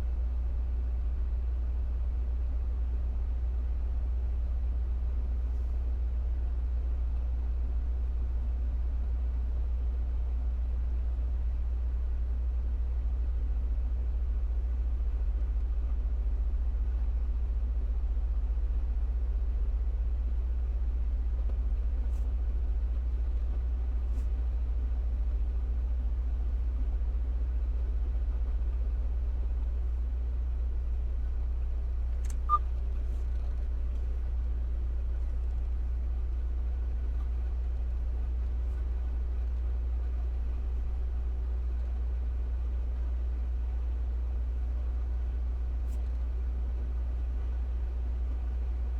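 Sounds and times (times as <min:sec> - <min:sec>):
sharp click: 0:32.2 - 0:32.6.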